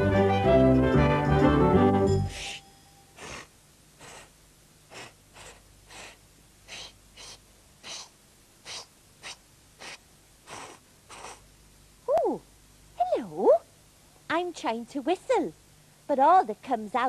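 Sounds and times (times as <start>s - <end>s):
breathy puffs of air: 2.3s - 11.5s.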